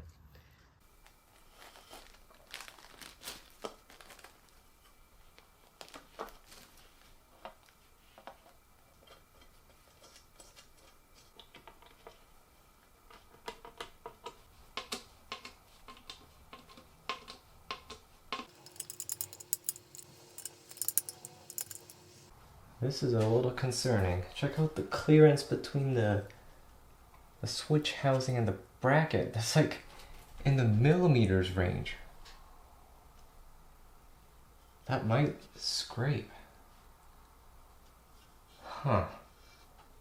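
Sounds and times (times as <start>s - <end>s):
fan parts clicking and knocking: 18.4s - 22.3s.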